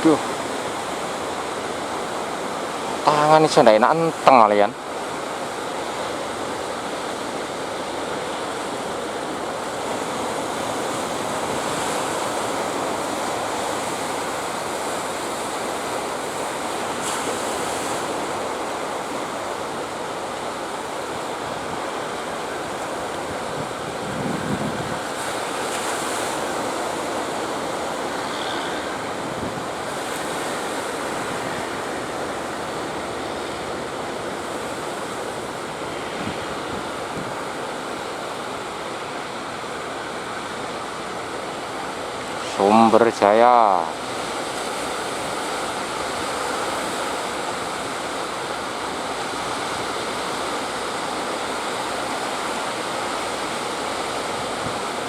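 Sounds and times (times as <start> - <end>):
sea waves breaking: 0.0 - 55.0
wind buffeting microphone: 18.0 - 42.1.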